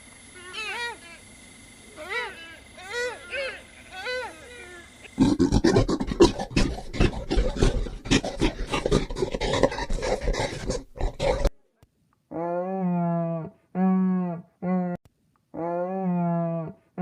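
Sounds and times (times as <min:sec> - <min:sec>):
steady pitched animal call: 0:00.3 - 0:11.5
rough rapidly pulsing animal call: 0:01.9 - 0:11.5.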